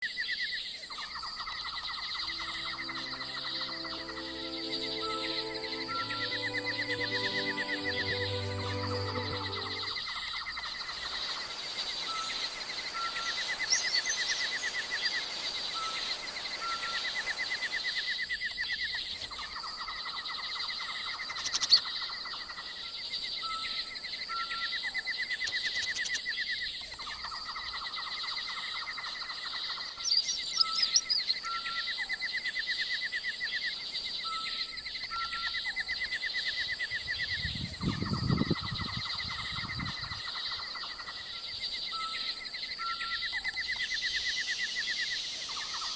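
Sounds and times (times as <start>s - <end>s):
bird chirps and trills: 1.0s - 18.1s
high-pitched hum: 1.8s - 10.3s.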